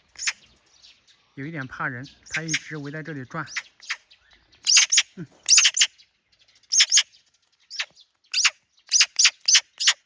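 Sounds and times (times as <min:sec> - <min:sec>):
bird chirping: 0:00.0 - 0:10.0.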